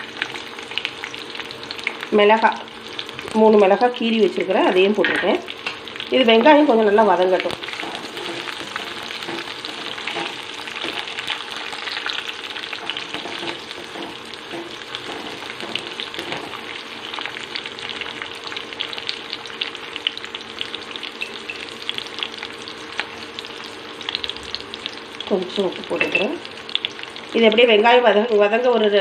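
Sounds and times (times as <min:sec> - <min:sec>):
onions sizzling in hot oil: 0:00.0 - 0:29.0
wooden spatula scraping: 0:07.6 - 0:11.1.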